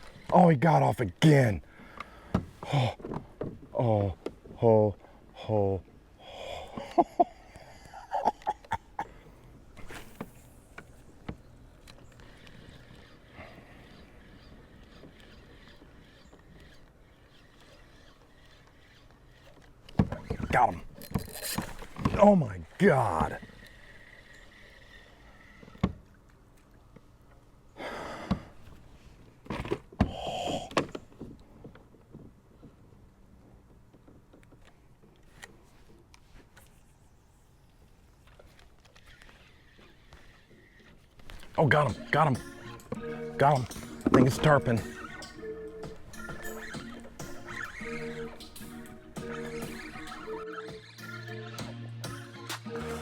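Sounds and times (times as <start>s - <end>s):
fishing gear knocks and clicks: 19.4s - 22.3s, 40.8s - 47.5s.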